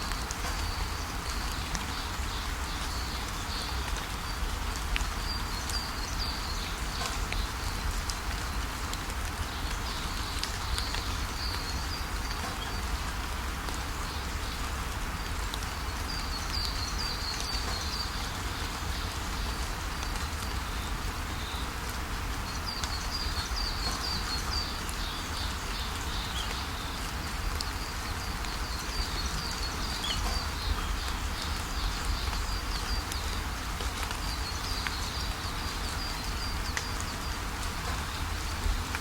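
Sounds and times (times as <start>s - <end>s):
steady rain falling: 0.0s - 39.0s
small birds chirping: 15.8s - 21.8s, 22.4s - 38.8s.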